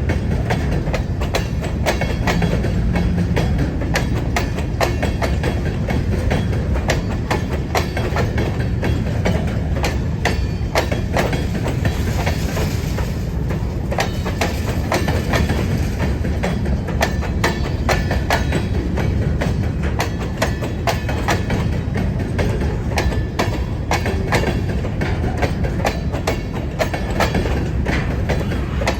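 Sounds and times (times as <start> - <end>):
train rumbling on rails: 0.0 - 28.9
wheels clicking over rail joints: 0.0 - 28.9.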